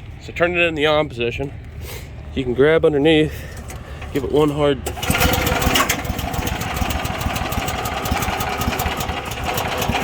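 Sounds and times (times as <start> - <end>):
recoil starter pull: 3.5 - 10.0
small engine idling: 3.5 - 10.0.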